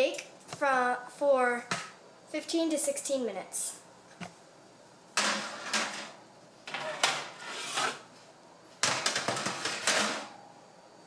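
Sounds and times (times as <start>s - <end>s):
baking pans and utensils clattering: 5.2s - 8.0s, 8.8s - 10.4s.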